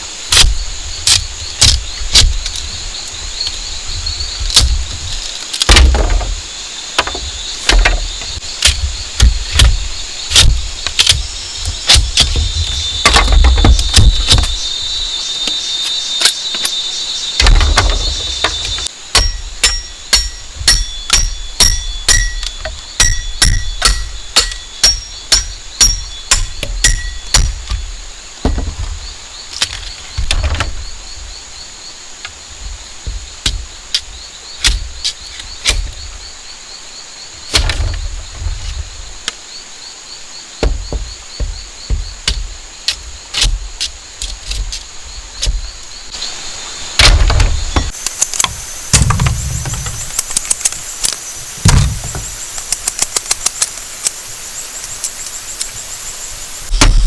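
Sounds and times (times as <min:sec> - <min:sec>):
knocking and chopping on bamboo: 0:04.4 - 0:14.8, 0:15.4 - 0:30.8, 0:32.3 - 0:36.1, 0:37.5 - 0:39.4, 0:40.6 - 0:45.8, 0:47.0 - 0:54.0, 0:56.7 - 0:57.0.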